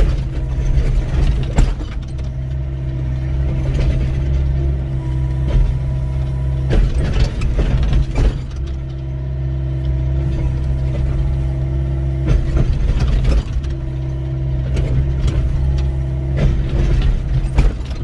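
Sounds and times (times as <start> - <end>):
excavator diesel engine running: 0.0 - 18.0
hydraulic whine: 0.0 - 18.0.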